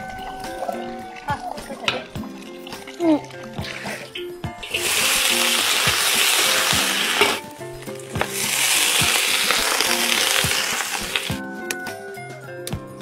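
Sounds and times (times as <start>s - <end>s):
food sizzling in hot oil: 4.2s - 11.4s
metal spatula stir-frying in wok: 4.6s - 7.4s, 8.0s - 11.3s.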